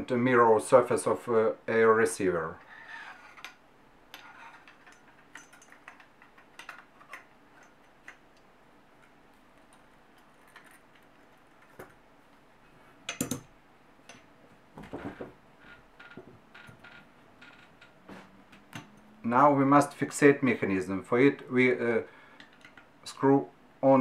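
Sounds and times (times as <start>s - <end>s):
metal parts clicking: 3.4s - 8.2s
clatter of knocks: 14.8s - 15.4s.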